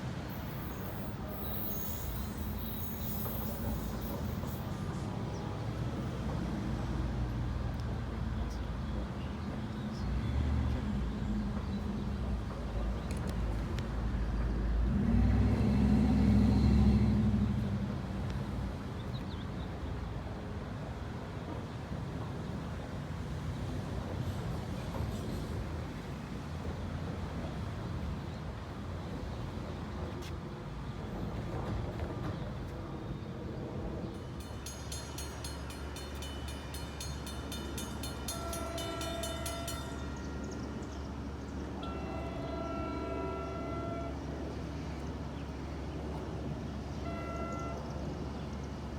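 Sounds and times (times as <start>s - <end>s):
train rumbling: 0.0s - 48.9s
distant train horn: 36.2s - 45.2s, 46.9s - 48.5s.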